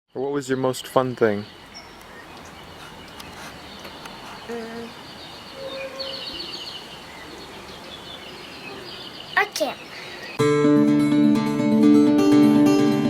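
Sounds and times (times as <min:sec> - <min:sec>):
birds chirping: 0:00.2 - 0:10.4.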